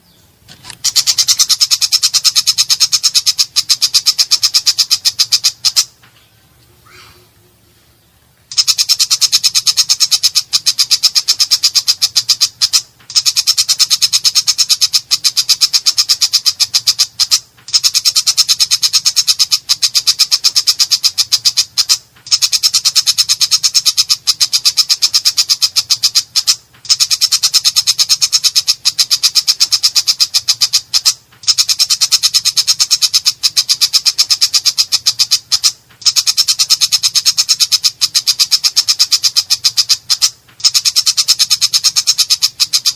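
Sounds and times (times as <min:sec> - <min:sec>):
faint low hum: 0:00.0 - 0:19.8.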